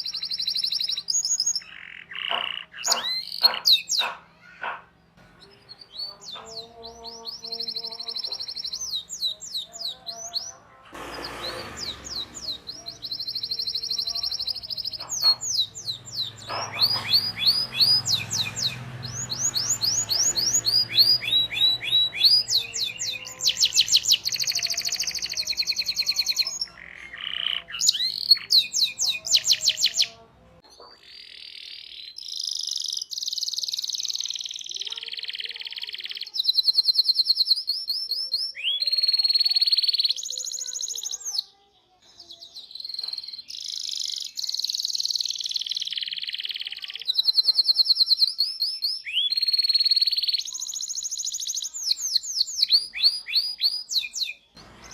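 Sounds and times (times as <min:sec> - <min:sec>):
canary singing: 0:00.0 - 0:54.9.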